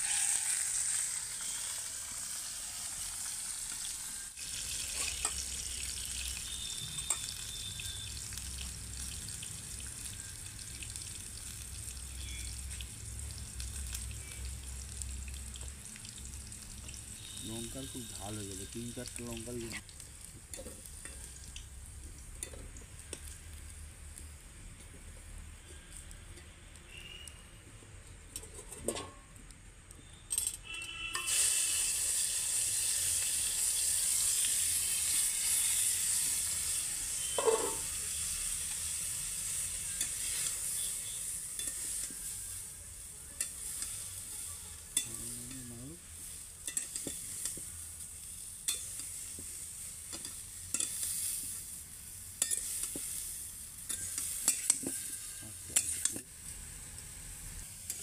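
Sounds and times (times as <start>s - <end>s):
vegetables sizzling in hot oil: 0.0s - 27.3s, 31.2s - 58.0s
metal spatula scraping a pan: 30.4s - 42.6s, 43.4s - 45.6s, 48.7s - 51.7s, 52.4s - 56.2s.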